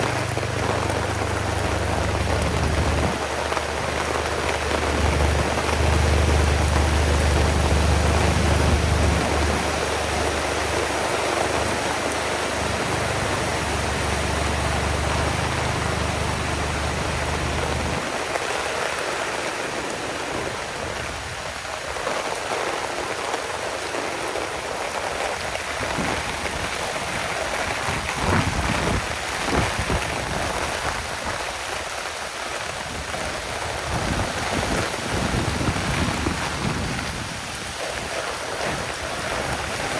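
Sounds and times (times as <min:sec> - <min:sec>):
low rumble: 0:00.0 - 0:18.6
heavy rain pouring: 0:00.0 - 0:39.9.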